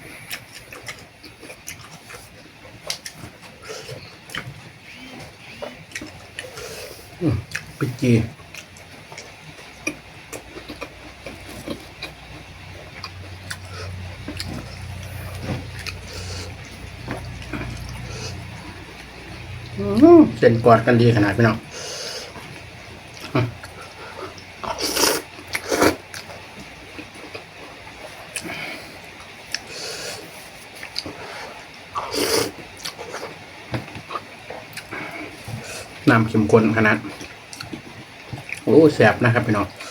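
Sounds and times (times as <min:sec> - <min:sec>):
slurping and chewing: 0:00.0 - 0:19.8, 0:21.6 - 0:36.0, 0:37.0 - 0:38.7
wet mouth clicks and chewing: 0:02.8 - 0:03.3, 0:08.5 - 0:19.8, 0:37.2 - 0:38.7
low hum: 0:10.4 - 0:24.1
person slurping noodles: 0:23.8 - 0:26.2, 0:32.0 - 0:33.4.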